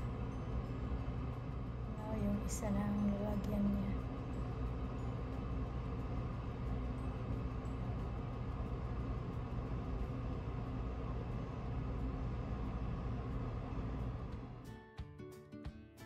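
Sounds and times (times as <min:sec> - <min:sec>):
mechanical hum and rumble: 0:00.0 - 0:14.8.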